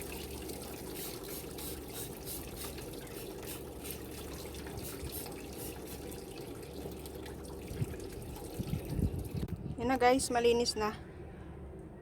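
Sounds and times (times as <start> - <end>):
running water splashing: 0.0 - 9.4.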